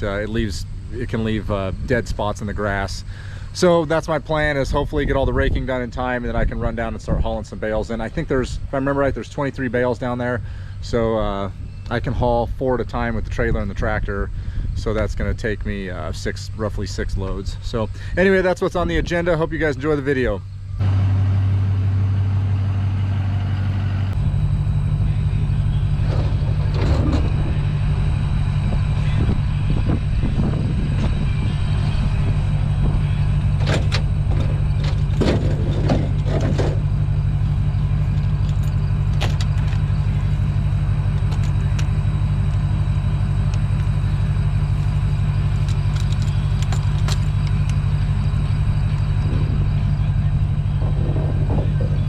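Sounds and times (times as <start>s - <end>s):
vehicle engine running: 0.0s - 52.0s
vehicle rattles and knocks: 24.1s - 52.0s.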